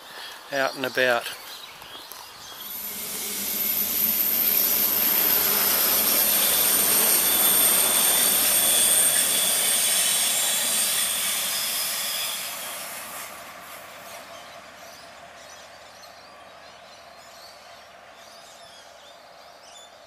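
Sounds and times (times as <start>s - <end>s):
high steady whining tones: 2.5s - 14.6s
diesel train passing: 2.5s - 16.4s.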